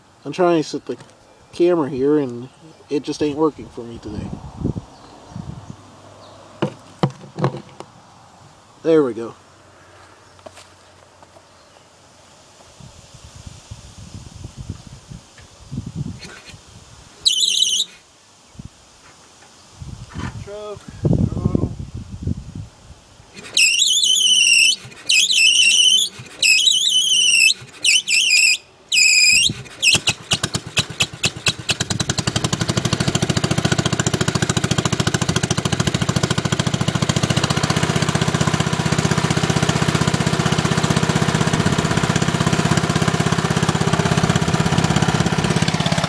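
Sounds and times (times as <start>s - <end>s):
electric starter whining: 23.4s - 46.0s
tractor engine running: 23.4s - 46.0s.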